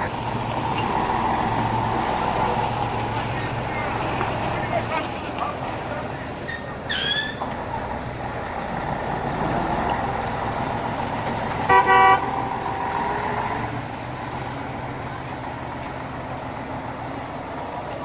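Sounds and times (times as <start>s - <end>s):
steady traffic noise: 0.0s - 18.0s
car horn toots: 11.7s - 12.8s.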